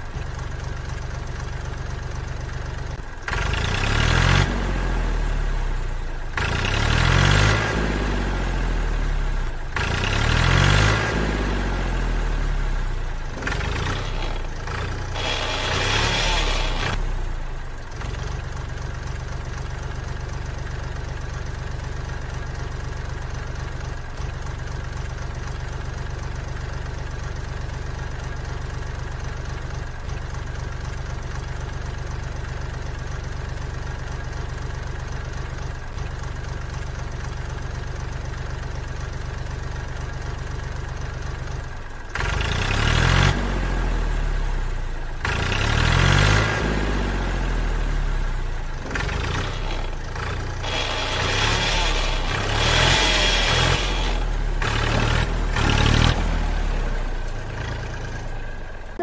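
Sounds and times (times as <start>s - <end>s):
model tractor motor humming: 13.3s - 22.3s, 48.8s - 56.0s.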